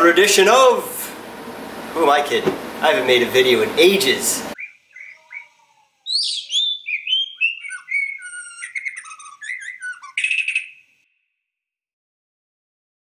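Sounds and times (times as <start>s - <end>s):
bird chirps and whistles: 4.6s - 11.0s.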